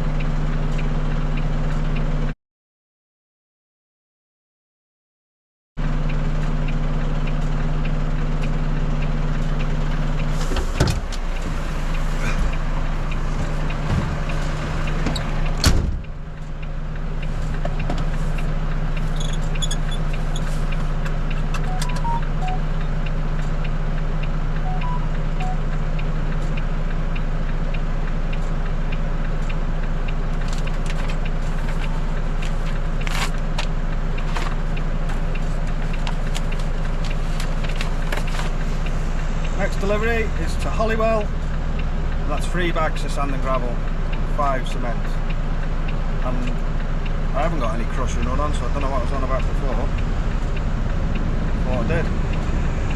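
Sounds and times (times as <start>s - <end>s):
lorry diesel engine idling: 0.0s - 2.3s, 5.8s - 52.9s
clunk: 10.3s - 12.5s, 13.4s - 16.1s.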